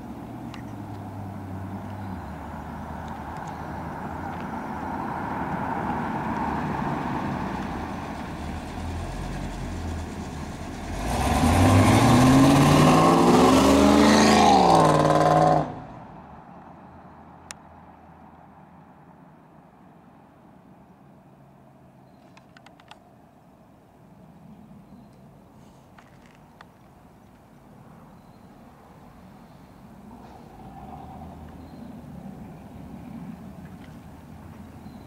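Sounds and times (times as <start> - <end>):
steady road hum: 0.0 - 35.0
car engine accelerating: 5.8 - 16.0.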